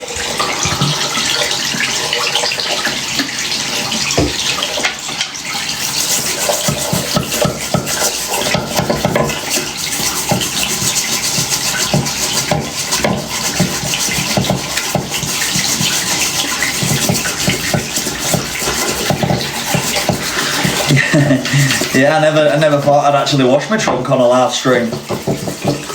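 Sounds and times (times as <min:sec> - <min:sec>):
small knocks and splashes: 0:00.0 - 0:25.9
water running from tap: 0:00.0 - 0:25.9
object scrubbed under water: 0:05.7 - 0:25.9.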